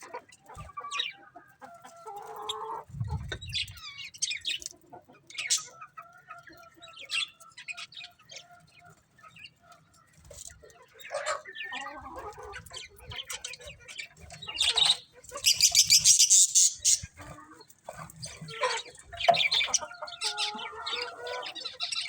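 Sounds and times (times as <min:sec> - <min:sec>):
budgerigars chirping: 0:05.3 - 0:05.8, 0:06.7 - 0:09.6, 0:11.0 - 0:17.3, 0:18.0 - 0:22.0.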